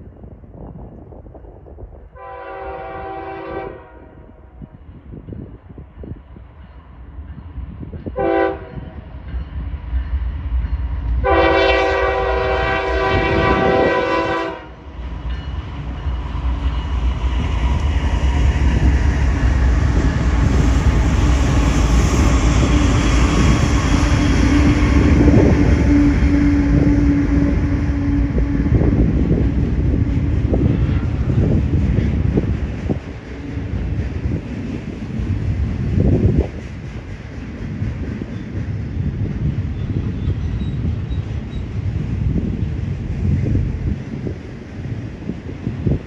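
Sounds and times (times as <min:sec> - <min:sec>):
freight train rumbling on rails: 0:00.0 - 0:46.0
locomotive air horn blasts: 0:02.2 - 0:04.2, 0:08.2 - 0:08.8, 0:11.2 - 0:14.8.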